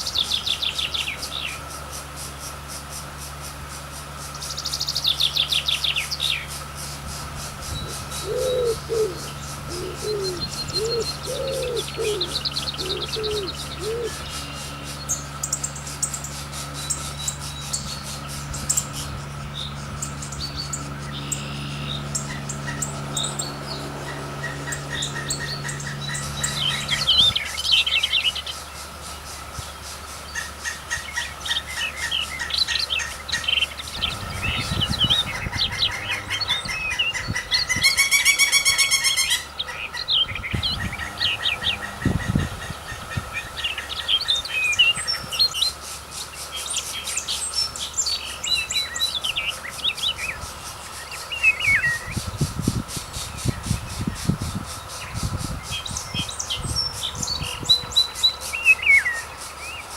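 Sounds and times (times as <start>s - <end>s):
birds chirping: 0.0s - 59.9s
drawn-out bird call: 0.0s - 59.9s
low hum: 5.0s - 28.5s, 33.7s - 44.2s.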